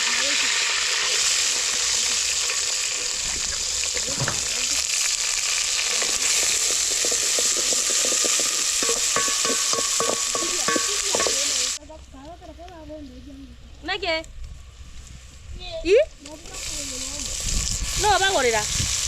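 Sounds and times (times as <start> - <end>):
food sizzling in hot oil: 0.0 - 11.8, 16.2 - 19.0
utensil knocking against pan: 6.7 - 11.6.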